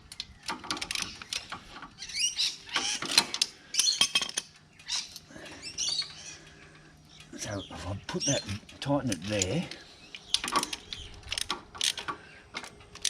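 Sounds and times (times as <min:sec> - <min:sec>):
small parts clicking and knocking: 0:00.0 - 0:02.1, 0:02.7 - 0:06.2, 0:08.6 - 0:13.0.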